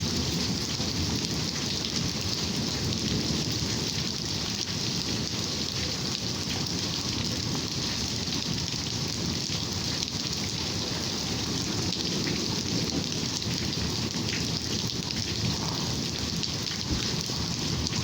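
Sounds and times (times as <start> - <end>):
rain falling steadily: 0.0 - 18.0.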